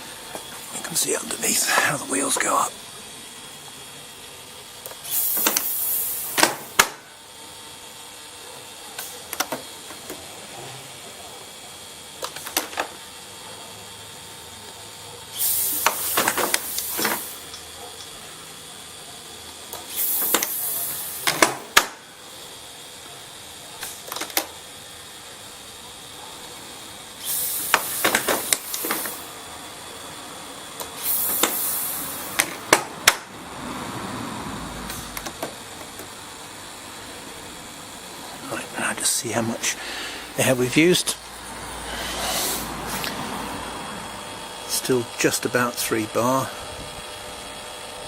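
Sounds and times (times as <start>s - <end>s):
compressed air hiss: 0.0s - 2.8s, 4.8s - 7.2s, 15.3s - 17.6s, 19.7s - 22.5s, 26.5s - 44.9s.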